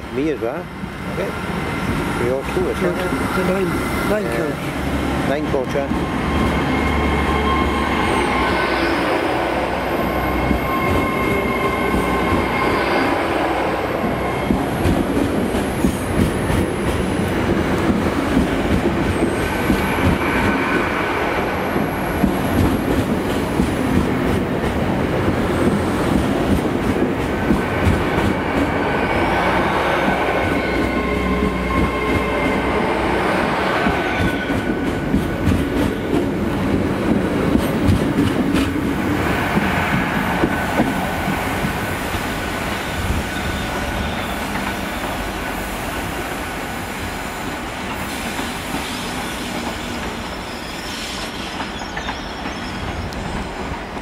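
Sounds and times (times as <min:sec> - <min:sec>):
train running hum with whine: 0:00.0 - 0:54.0
train wheels clicking over rail joints: 0:14.0 - 0:32.6, 0:33.7 - 0:43.6.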